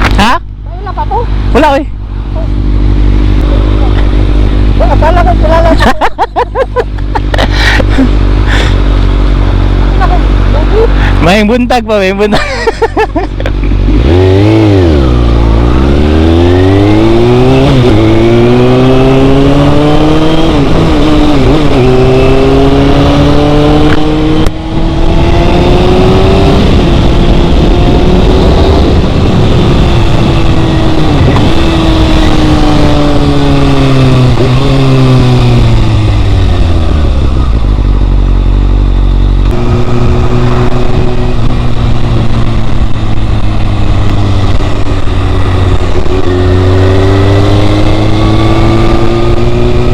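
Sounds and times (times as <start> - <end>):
motorcycle engine shifting gears: 1.3 - 11.3, 13.3 - 49.9
heavy wind rush: 13.3 - 49.9.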